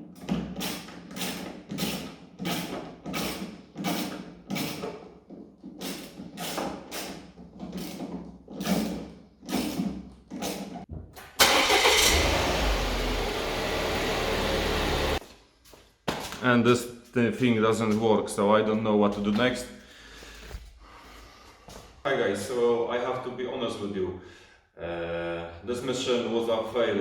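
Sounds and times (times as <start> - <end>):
car engine cranking and idling: 11.2 - 15.2.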